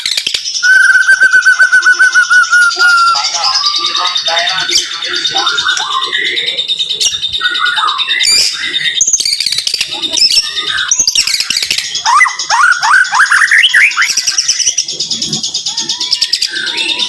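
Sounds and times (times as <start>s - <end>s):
bird singing chirps and whistles: 0.0s - 17.0s.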